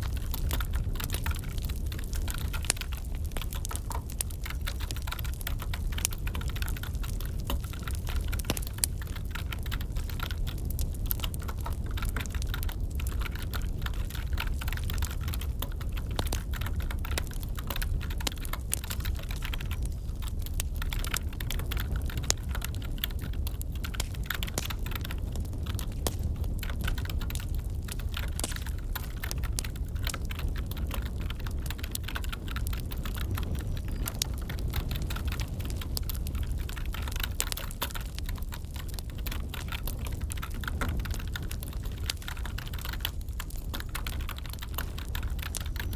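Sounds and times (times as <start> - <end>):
wood fire crackling: 0.0 - 45.9
keyboard typing: 38.8 - 45.9.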